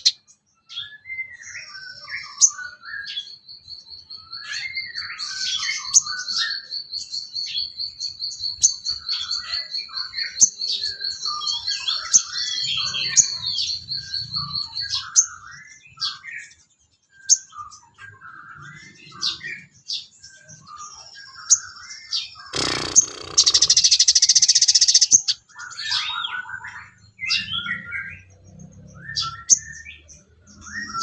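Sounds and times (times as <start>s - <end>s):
bird trilling: 0.0s - 0.2s, 21.0s - 31.0s
bird chirps and whistles: 20.4s - 28.1s, 29.1s - 31.0s.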